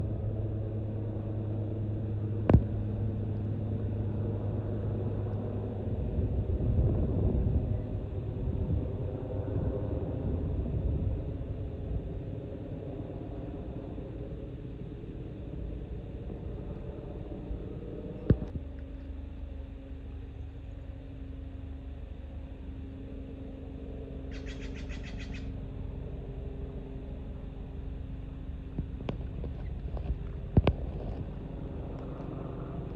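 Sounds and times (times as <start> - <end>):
low rumble: 0.0 - 32.9.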